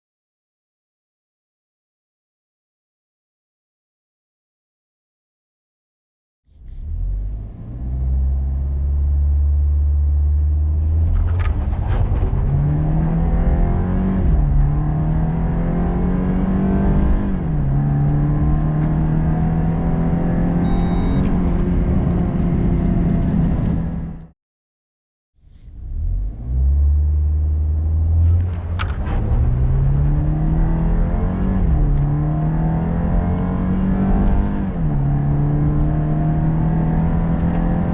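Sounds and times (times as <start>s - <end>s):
car engine accelerating: 6.5s - 24.3s, 25.4s - 37.9s
brief high tone: 20.6s - 21.4s.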